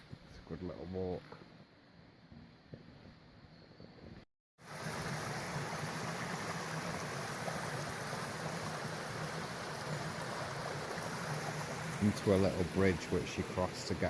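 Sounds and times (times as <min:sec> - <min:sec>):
fast river rushing: 0:04.7 - 0:14.0.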